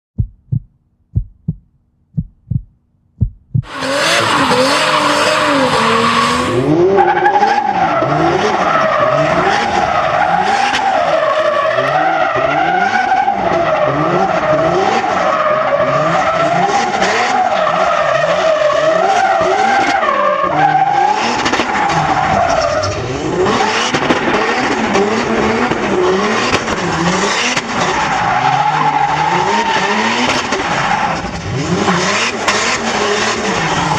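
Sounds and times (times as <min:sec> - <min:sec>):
low thumps: 0:00.2 - 0:03.7.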